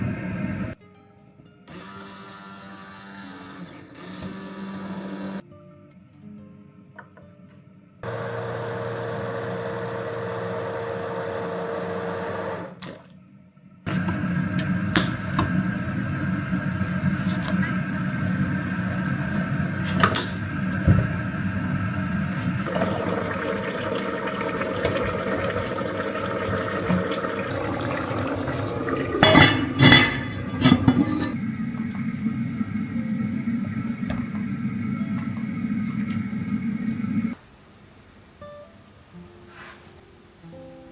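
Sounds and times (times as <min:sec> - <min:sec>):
appliance hum: 0:00.0 - 0:00.8, 0:08.0 - 0:13.1, 0:13.9 - 0:37.4
dishes and utensils clinking: 0:26.9 - 0:31.4.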